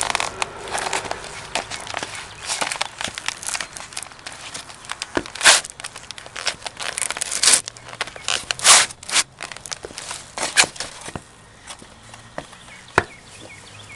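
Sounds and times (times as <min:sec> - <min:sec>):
cardboard crumpling and tearing: 0:00.0 - 0:11.2
boots stomping on cardboard: 0:09.8 - 0:13.6.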